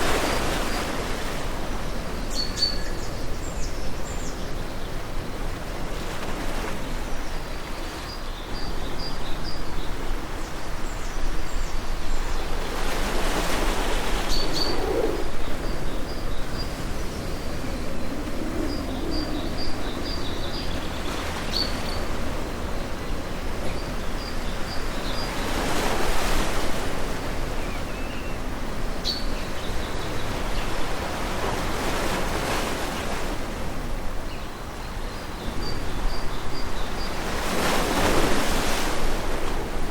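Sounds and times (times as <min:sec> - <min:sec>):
birds chirping: 0:08.2 - 0:26.3.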